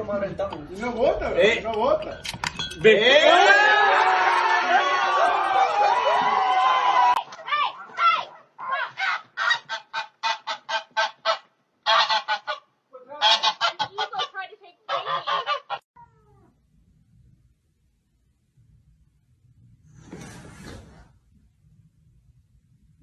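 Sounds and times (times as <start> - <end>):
goose-like bird honking: 9.4 - 15.8.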